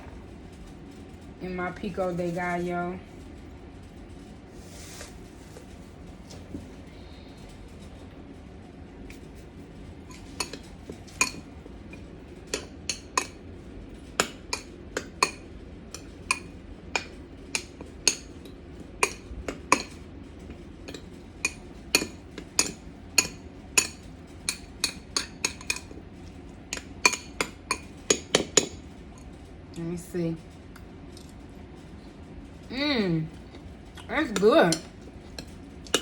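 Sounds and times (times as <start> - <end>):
metal utensil clinking on dish: 10.1 - 13.4, 19.0 - 20.0, 20.9 - 26.0, 26.7 - 28.8, 34.3 - 36.0.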